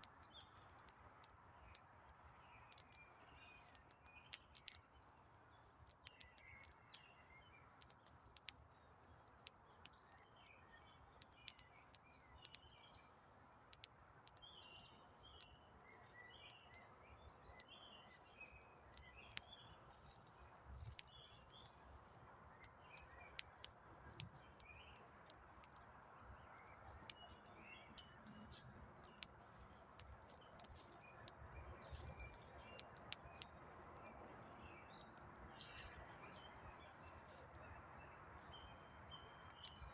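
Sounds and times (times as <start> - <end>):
campfire crackling: 0.0 - 3.0, 18.0 - 34.1
small birds chirping: 0.0 - 39.9.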